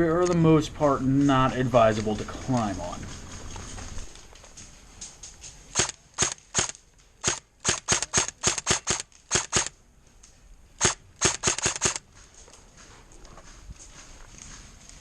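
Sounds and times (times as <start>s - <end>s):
airsoft guns firing: 5.7s - 9.7s, 10.8s - 12.0s.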